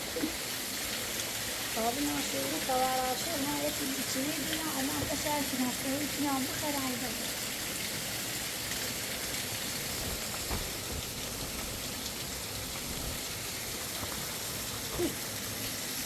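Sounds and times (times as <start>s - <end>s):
mountain stream rushing: 7.9s - 16.0s.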